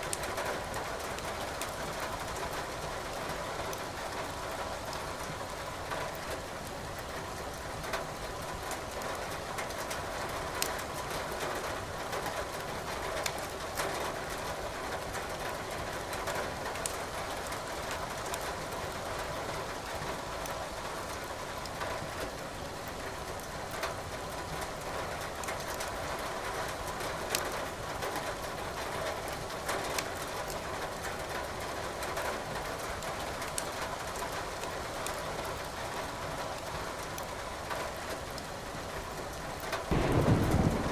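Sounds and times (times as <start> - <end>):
firewood crackling and popping: 16.8 - 17.0, 39.6 - 40.9
rain hissing: 39.8 - 40.9.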